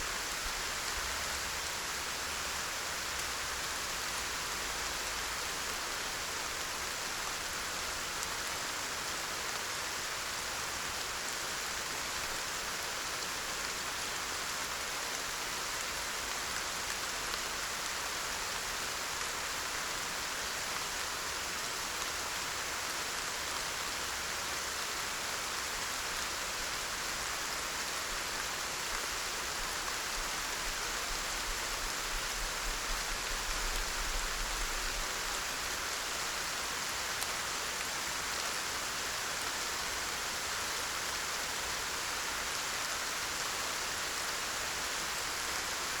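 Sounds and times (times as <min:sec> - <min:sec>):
steady rain hiss: 0:00.0 - 0:46.0.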